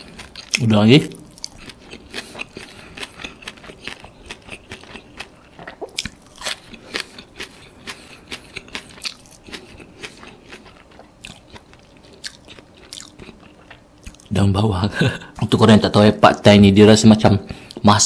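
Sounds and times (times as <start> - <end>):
wet crunchy chewing: 0.0 - 14.3.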